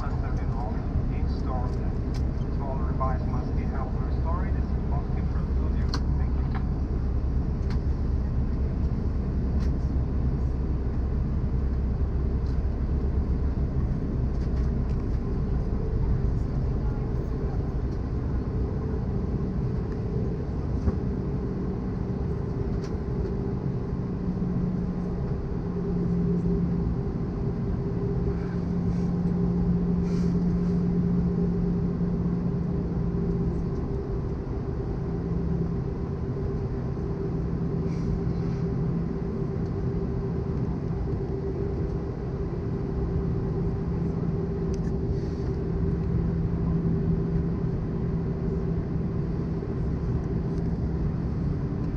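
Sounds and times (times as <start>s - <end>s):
jet engines humming: 0.0s - 51.9s.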